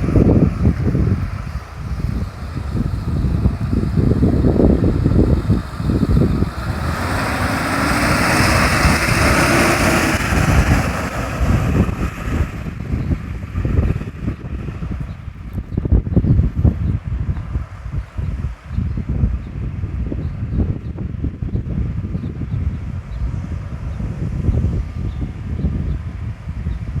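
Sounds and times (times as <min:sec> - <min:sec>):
truck engine running: 0:00.0 - 0:17.6
wind buffeting microphone: 0:00.0 - 0:27.0.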